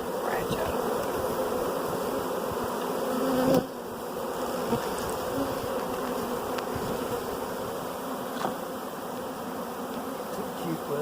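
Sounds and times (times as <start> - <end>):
bees buzzing: 0.0 - 11.0
loud bee buzz: 0.0 - 11.0.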